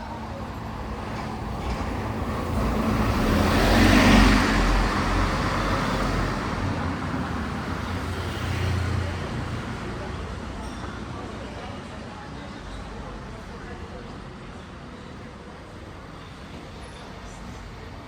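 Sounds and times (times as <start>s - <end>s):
vehicle passing by: 2.5s - 6.8s.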